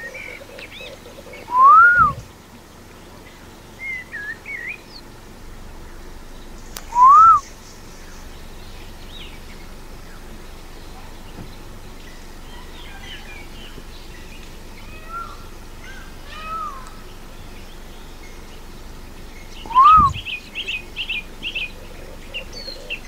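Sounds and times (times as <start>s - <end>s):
birds chirping and whistling: 0.0s - 2.4s, 3.8s - 5.1s, 6.4s - 23.0s.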